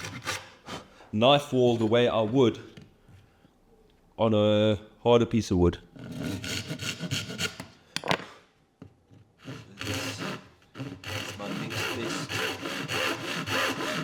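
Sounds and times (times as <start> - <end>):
hand tool scraping wood: 0.0 - 1.0, 6.0 - 7.7, 9.1 - 14.0.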